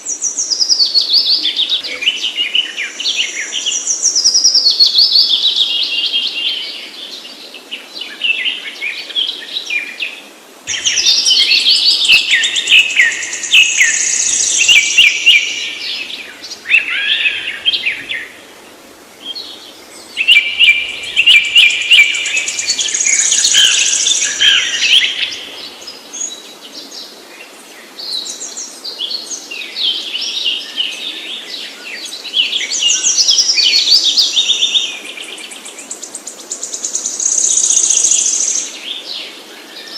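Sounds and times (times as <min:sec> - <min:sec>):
small birds chirping: 0:10.7 - 0:39.9.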